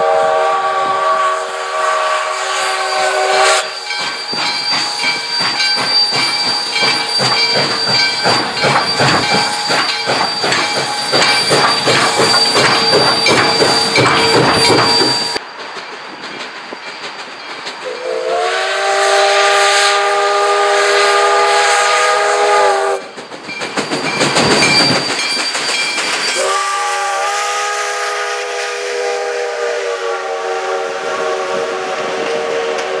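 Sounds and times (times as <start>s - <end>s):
steam hiss: 0.0s - 33.0s
steam locomotive exhaust beats: 0.0s - 33.0s
chime whistle blasts: 2.1s - 15.4s, 23.6s - 28.2s
rail clatter: 2.9s - 18.1s, 23.0s - 26.7s.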